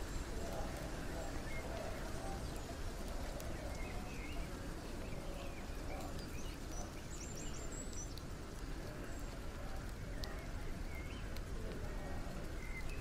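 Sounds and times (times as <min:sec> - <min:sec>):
low rumble and hiss: 0:00.0 - 0:13.0.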